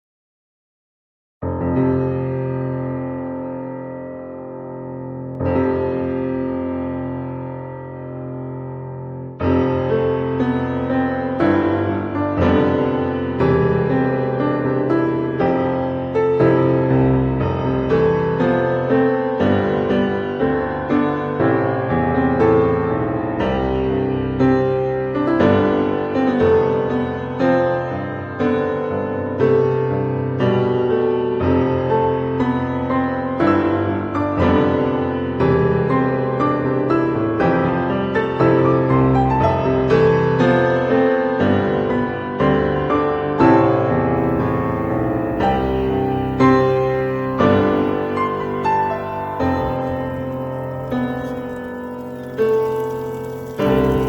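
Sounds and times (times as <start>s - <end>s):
piano music: 44.2s - 54.0s.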